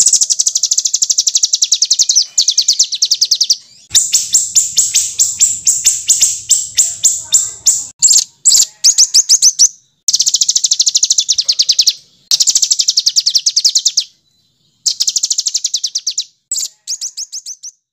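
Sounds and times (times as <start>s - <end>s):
songbird harsh rapid phrases: 0.0s - 14.1s.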